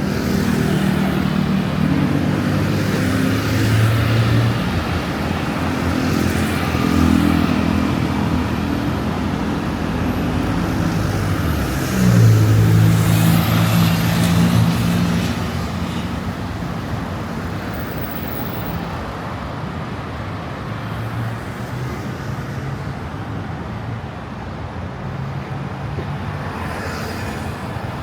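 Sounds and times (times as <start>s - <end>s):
vehicle engines humming: 0.0s - 19.0s.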